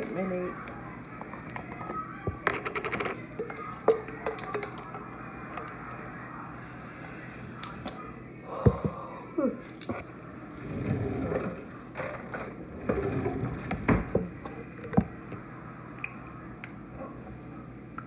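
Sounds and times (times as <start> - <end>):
containers and utensils clicking: 1.4 - 5.8.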